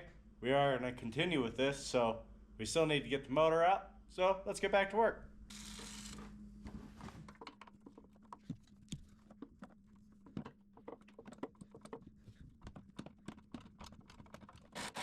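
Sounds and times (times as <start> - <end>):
low steady hum: 0.0 - 13.8
hand tools clicking and tapping: 7.3 - 14.8.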